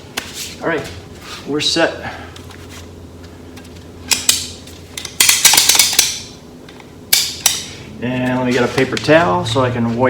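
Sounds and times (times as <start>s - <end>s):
hard objects clinking and clattering: 4.1s - 6.3s.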